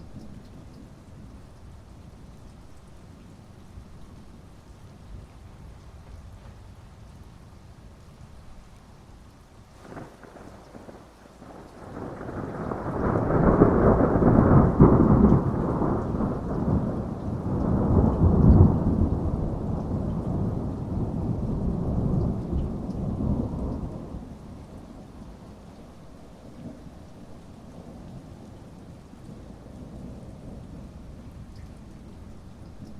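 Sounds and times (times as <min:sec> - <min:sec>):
steady rain: 0:00.0 - 0:32.9
thunder rumbling: 0:09.8 - 0:25.7.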